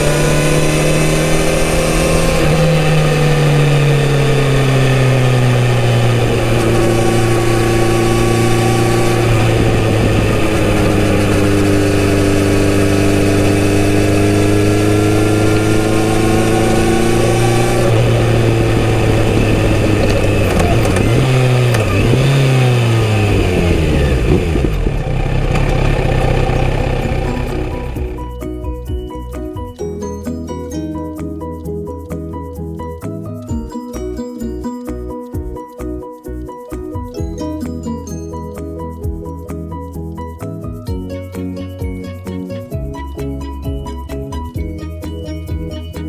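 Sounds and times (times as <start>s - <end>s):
motorcycle engine revving: 0.0s - 28.4s.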